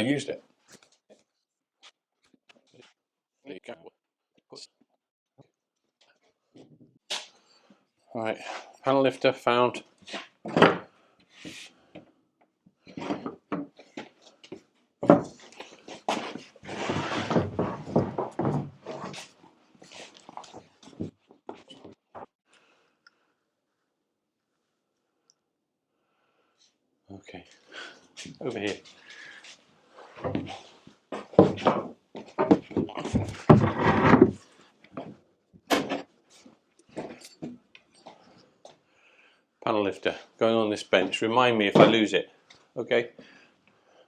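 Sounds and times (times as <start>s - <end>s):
objects knocking and clattering: 10.4s - 10.9s, 12.9s - 19.3s, 30.2s - 36.2s, 36.8s - 38.3s, 41.7s - 42.1s
scraping or rubbing: 15.6s - 20.6s, 33.0s - 34.6s.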